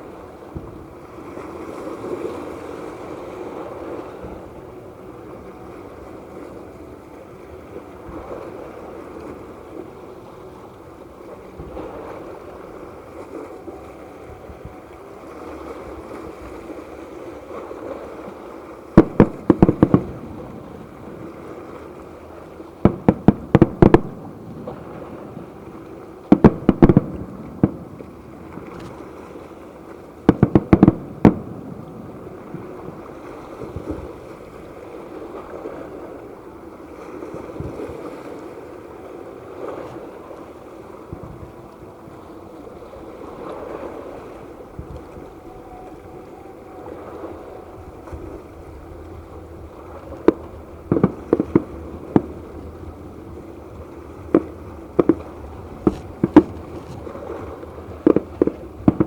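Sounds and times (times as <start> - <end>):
fireworks bangs: 19.0 - 20.8, 22.8 - 25.0, 26.3 - 28.9, 30.3 - 32.8, 48.0 - 59.0.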